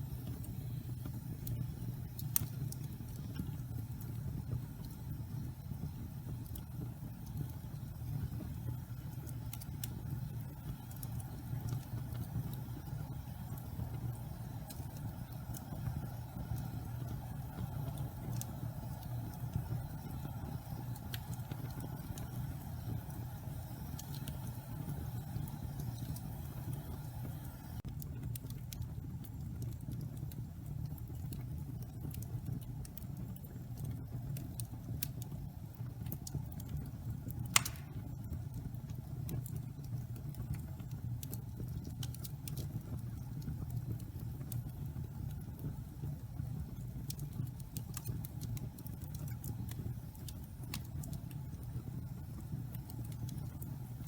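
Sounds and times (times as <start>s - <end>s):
fire flame rushing: 0.0s - 27.8s, 37.4s - 38.2s
wood crackling and popping: 0.0s - 54.0s
loud sharp pop: 37.6s - 38.0s.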